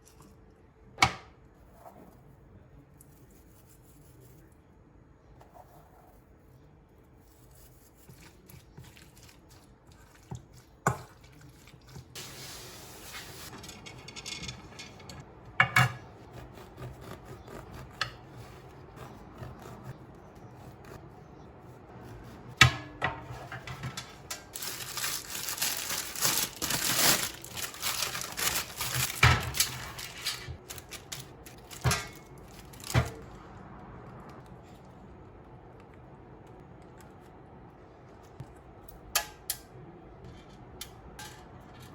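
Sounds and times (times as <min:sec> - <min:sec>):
rustling and scraping: 0:23.2 - 0:33.3.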